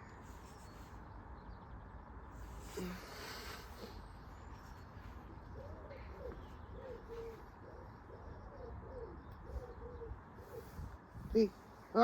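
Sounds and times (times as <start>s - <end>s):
bird cooing: 5.2s - 10.9s.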